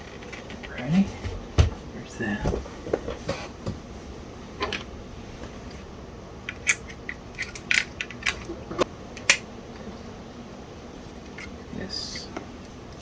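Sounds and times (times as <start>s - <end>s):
plastic parts clicking: 6.5s - 8.5s.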